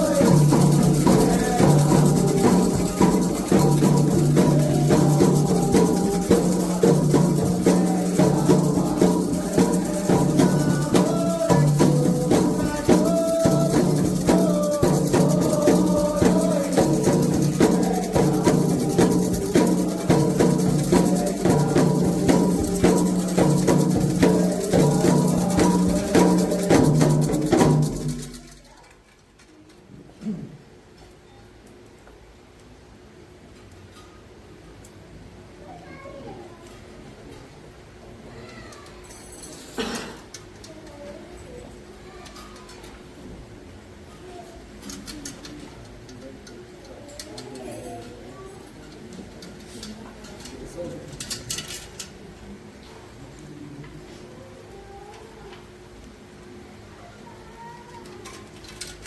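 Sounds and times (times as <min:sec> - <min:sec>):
drums: 0:00.0 - 0:28.8
shaker rattles: 0:00.0 - 0:29.8, 0:44.6 - 0:52.2, 0:57.9 - 0:59.0.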